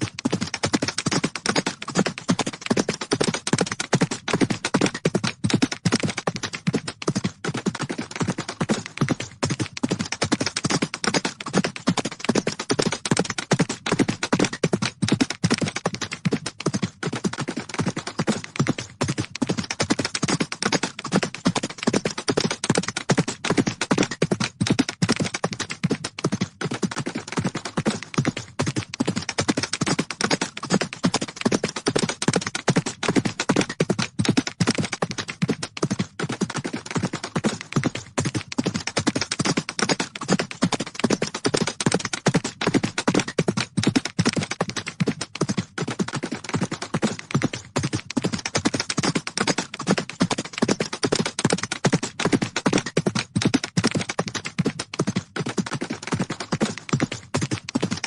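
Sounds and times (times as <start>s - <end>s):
horses galloping: 0.0s - 58.0s.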